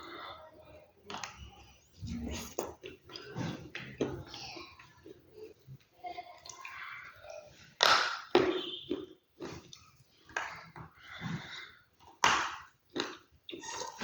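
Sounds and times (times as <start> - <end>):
crunchy food being chewed: 12.9 - 14.0.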